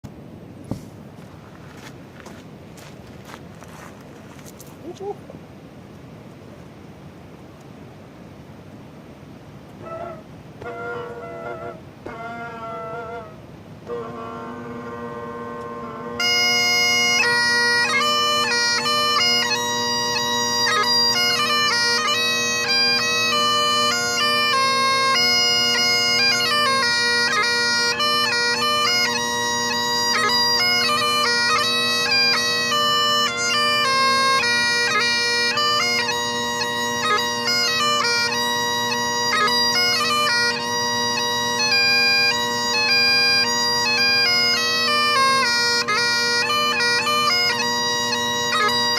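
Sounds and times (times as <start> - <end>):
bagpipe chanter melody: 9.8 - 48.9
bagpipe drones: 9.8 - 48.9.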